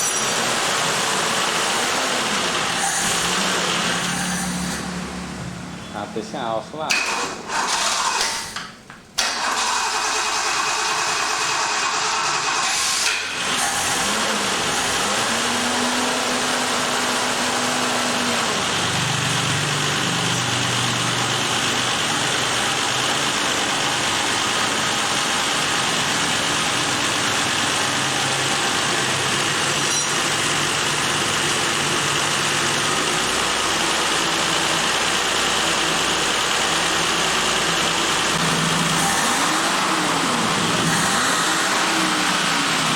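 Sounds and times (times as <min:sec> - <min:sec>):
car engine running: 0:13.4 - 0:42.9.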